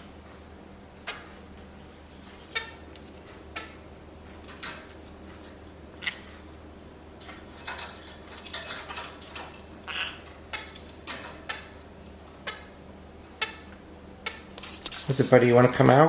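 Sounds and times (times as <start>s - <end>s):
parrots chirping and clicking: 0.9s - 1.7s, 2.3s - 12.8s, 13.4s - 15.0s.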